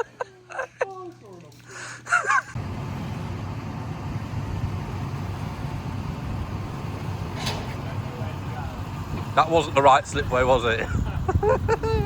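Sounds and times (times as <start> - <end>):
car engine and road noise: 2.6 - 10.8.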